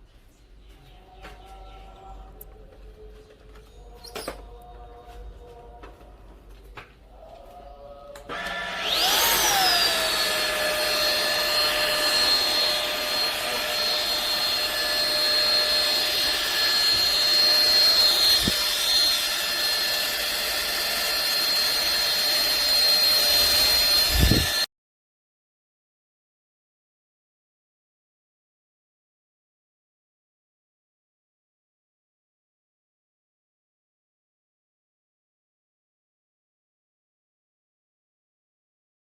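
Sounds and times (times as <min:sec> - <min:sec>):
vacuum cleaner motor whine: 0:08.1 - 0:24.7.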